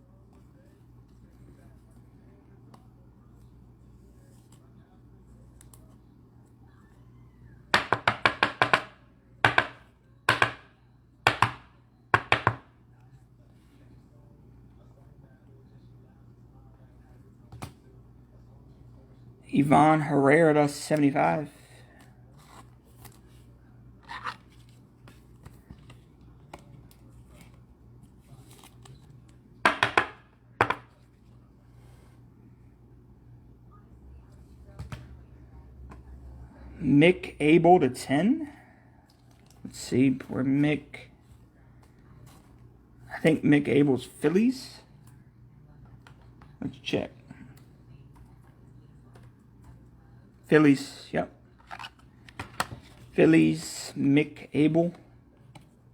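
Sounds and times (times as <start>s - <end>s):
cards and plastic sleeves rustling: 21.0s - 29.4s, 39.1s - 42.6s, 51.5s - 53.8s.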